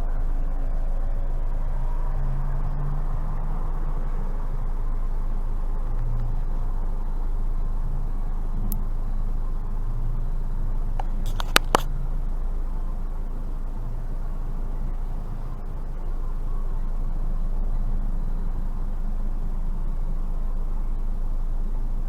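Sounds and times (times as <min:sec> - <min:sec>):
engine and road rumble: 0:00.0 - 0:22.0
sharp clicks: 0:11.0 - 0:11.9.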